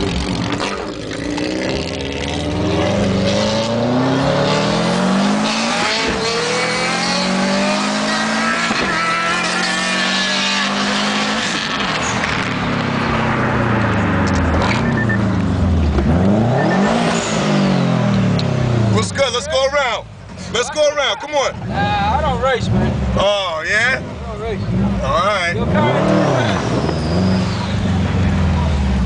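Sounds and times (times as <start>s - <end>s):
car engine accelerating: 0.0s - 20.0s, 21.4s - 29.0s.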